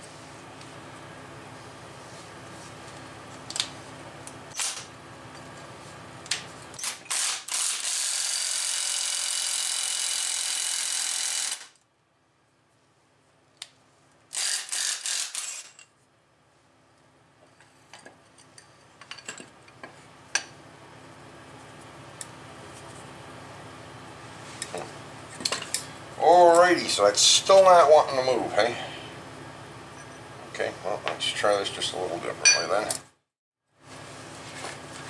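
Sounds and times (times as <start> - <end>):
low steady hum: 16.0 - 33.0.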